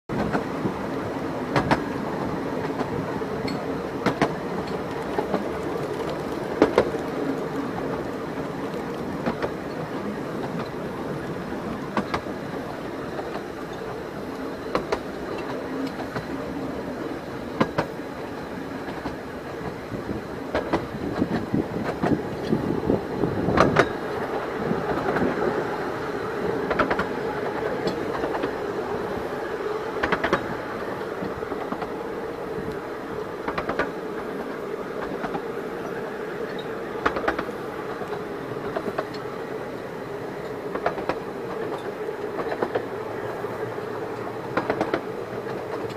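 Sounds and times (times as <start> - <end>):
train running rumble: 0.1 - 45.9
wheels clicking over rail joints: 1.5 - 2.0, 2.6 - 16.5, 17.5 - 18.0, 18.8 - 25.5, 26.4 - 32.0, 32.6 - 39.3, 40.4 - 45.9.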